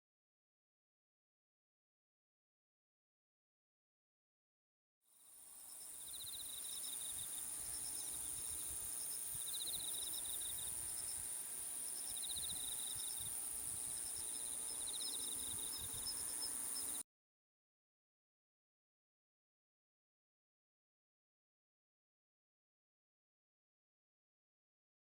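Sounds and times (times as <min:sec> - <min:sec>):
faint bird chirps: 0:05.2 - 0:17.0
high insect drone: 0:05.2 - 0:17.0.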